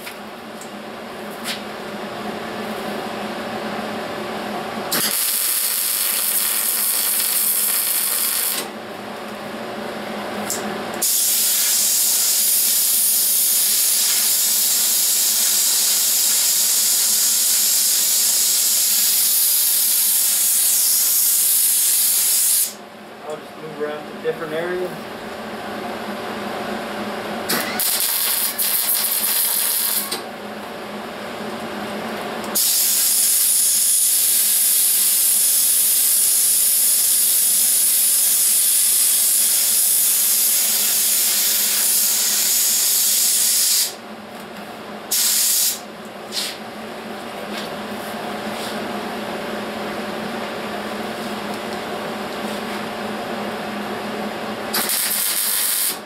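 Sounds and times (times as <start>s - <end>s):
welding hissing crackle: 4.9s - 8.7s, 11.0s - 22.8s, 27.5s - 30.2s, 32.5s - 44.0s, 45.1s - 46.6s, 54.7s - 56.0s.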